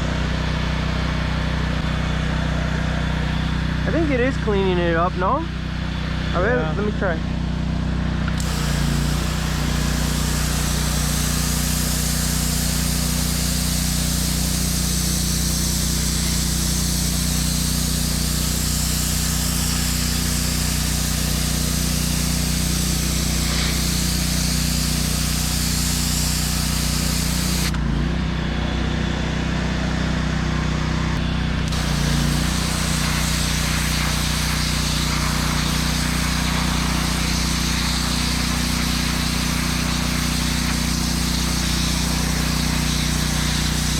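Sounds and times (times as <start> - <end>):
pressure washer engine humming: 0.0 - 43.9
water spraying onto concrete: 8.3 - 27.8, 31.6 - 43.9.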